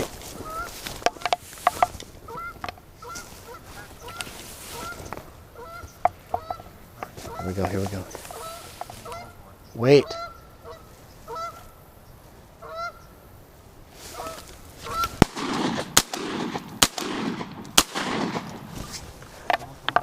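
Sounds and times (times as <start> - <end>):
geese honking: 0.2 - 11.9, 12.5 - 13.2, 14.0 - 16.0
shotgun shots: 15.2 - 18.8.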